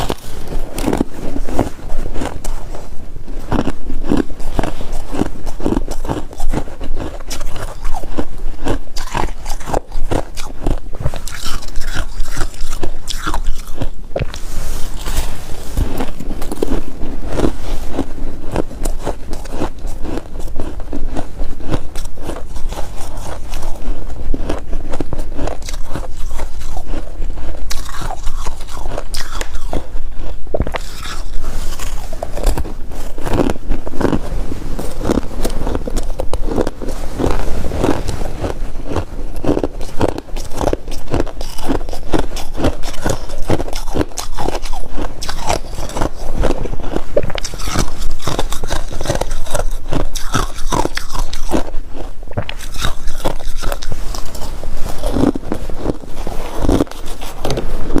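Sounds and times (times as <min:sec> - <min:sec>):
crunching and chewing frost: 0:00.0 - 0:58.0.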